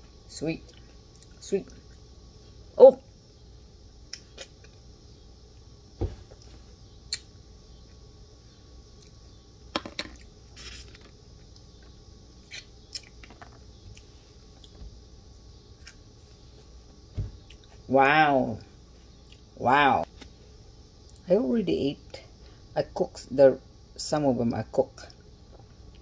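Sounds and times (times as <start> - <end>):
quiet chewing: 0.6 - 2.1, 13.9 - 14.8, 19.0 - 19.5.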